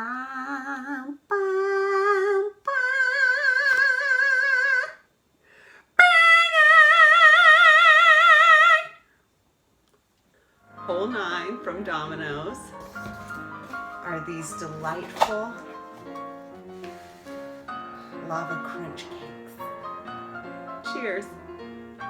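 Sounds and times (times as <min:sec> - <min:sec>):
person singing operatic notes: 0:00.0 - 0:05.0.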